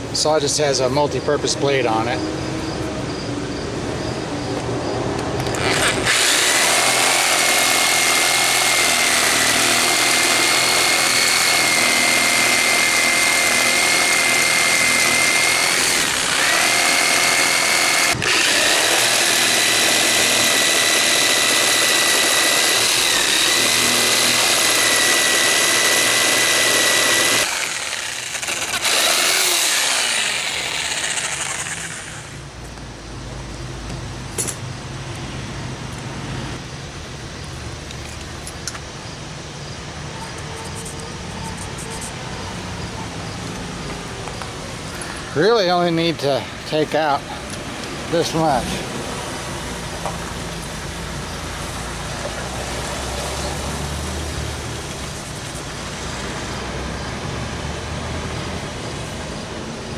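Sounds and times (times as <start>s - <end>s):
power saw cutting: 5.1s - 32.5s, 44.8s - 59.3s.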